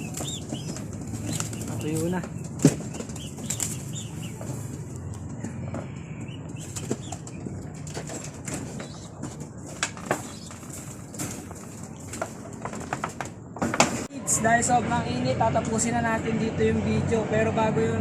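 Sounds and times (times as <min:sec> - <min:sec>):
pigeons flapping wings: 0:00.0 - 0:04.9.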